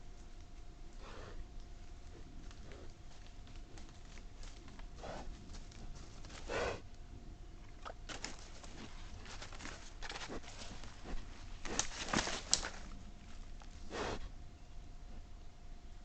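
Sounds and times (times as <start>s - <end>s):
rustling and clicking: 7.8s - 13.8s.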